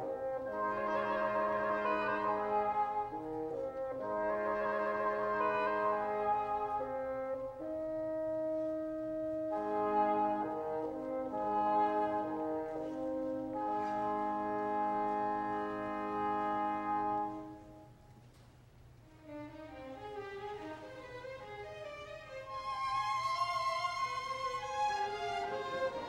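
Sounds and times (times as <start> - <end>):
french horns playing held chords: 0.0 - 18.0.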